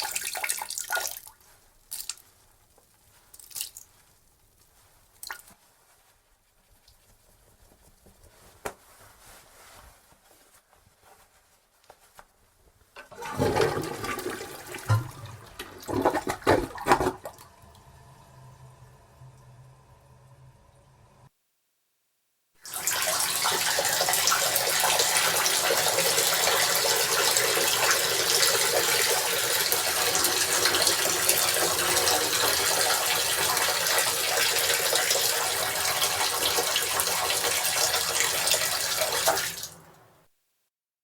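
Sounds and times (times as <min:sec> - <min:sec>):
tap running into sink: 0:13.0 - 0:17.6, 0:22.7 - 0:39.8.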